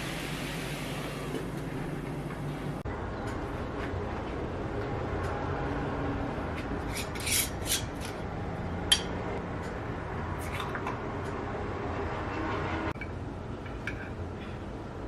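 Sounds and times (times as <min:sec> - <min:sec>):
steady background hum: 0:00.0 - 0:15.0
utensils scraping dishes: 0:06.8 - 0:08.2.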